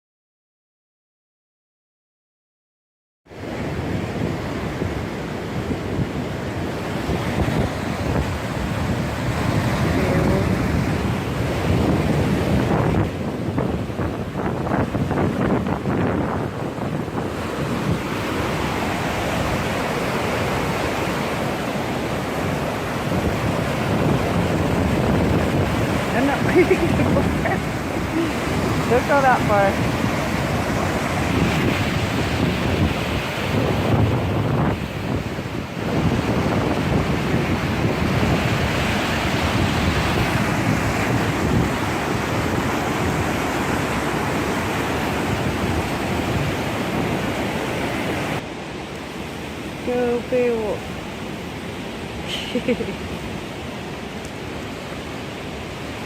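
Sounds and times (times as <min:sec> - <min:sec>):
wind buffeting microphone: 0:03.3 - 0:56.0
waterfall roaring: 0:16.8 - 0:56.0.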